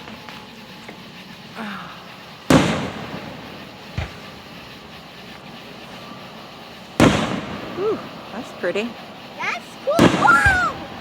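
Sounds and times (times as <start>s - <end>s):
firework shells bursting: 0.0s - 11.0s.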